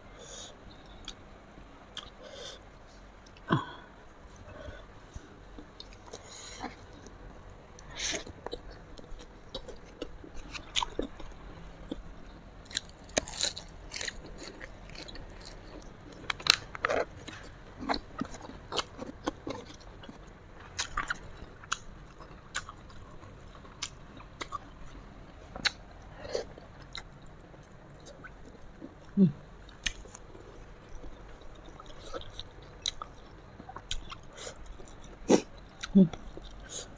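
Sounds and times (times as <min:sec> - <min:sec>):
chewing and crunching: 0:07.8 - 0:36.9.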